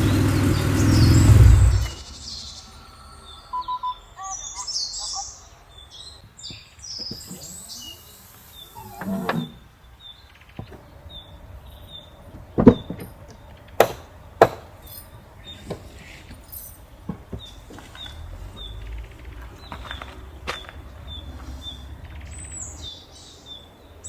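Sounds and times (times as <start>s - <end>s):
bird chirping: 0.0s - 24.0s
sharp knocks: 13.8s - 14.8s.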